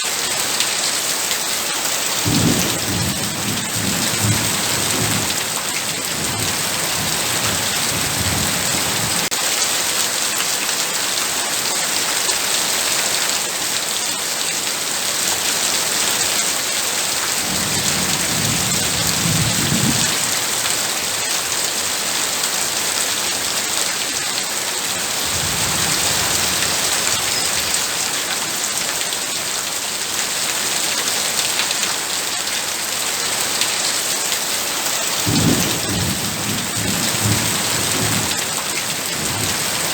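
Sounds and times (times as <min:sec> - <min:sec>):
heavy rain pouring: 0:00.0 - 0:39.9
thunder rumbling: 0:17.4 - 0:20.3, 0:35.3 - 0:39.7.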